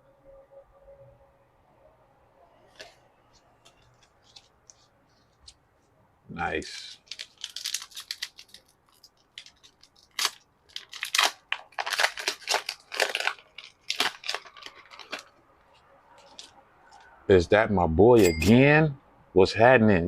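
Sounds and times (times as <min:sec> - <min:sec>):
cards rustling: 0:02.7 - 0:05.6, 0:06.6 - 0:17.1
foil wrapper crinkling: 0:06.7 - 0:16.6.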